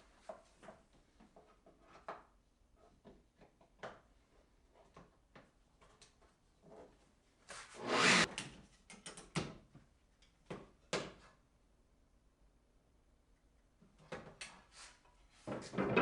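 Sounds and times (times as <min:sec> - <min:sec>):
wood rubbing slide: 0:07.8 - 0:08.3.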